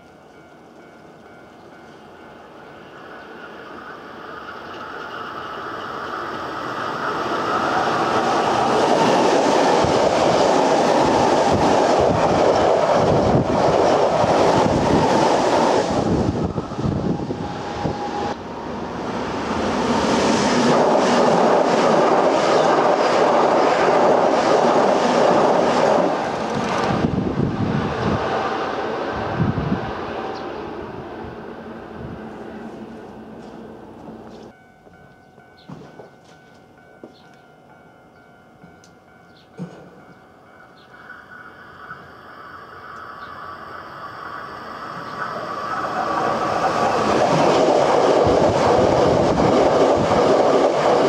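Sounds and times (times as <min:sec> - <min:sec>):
electric train passing at speed: 0:00.0 - 0:51.0
wheels clattering on rails: 0:20.6 - 0:27.1.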